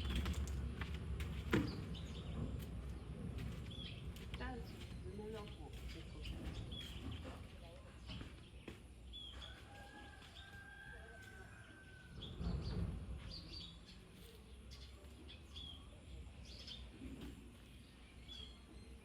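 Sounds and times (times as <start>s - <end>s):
faint birds chirping: 0.0s - 19.0s
outdoor background noise: 0.0s - 19.0s.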